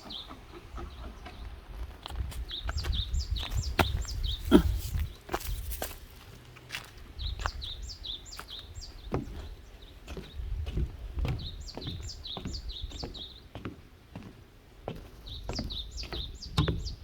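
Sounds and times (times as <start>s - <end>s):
low wind rumble: 0.0s - 13.3s
songbird singing: 0.0s - 17.0s.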